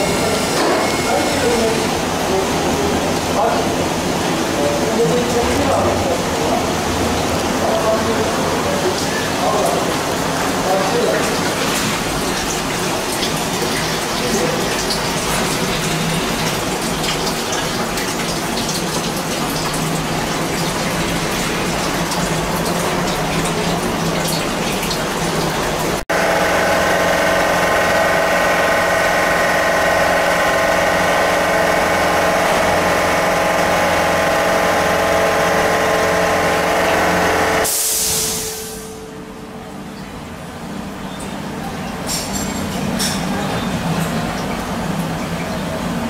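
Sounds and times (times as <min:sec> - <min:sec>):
milling machine cutting: 0:00.0 - 0:02.0
spindle and cutter whine: 0:00.0 - 0:02.0
coolant splashing with hiss: 0:00.0 - 0:39.0.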